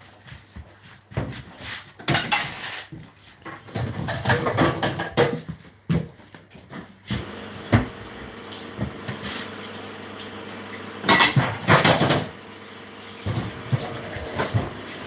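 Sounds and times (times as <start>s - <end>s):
kitchenware clattering: 2.0s - 2.9s, 3.7s - 5.5s, 11.1s - 12.3s.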